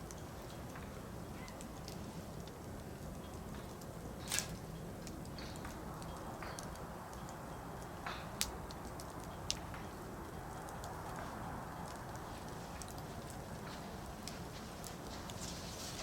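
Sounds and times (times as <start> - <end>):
firewood crackling and popping: 0.0 - 16.0
campfire flames rushing: 0.1 - 16.0.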